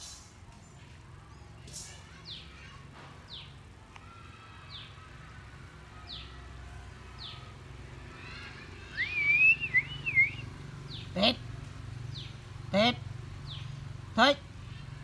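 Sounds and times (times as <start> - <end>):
bird chirping: 8.3 - 11.4, 12.1 - 12.4, 13.4 - 13.9.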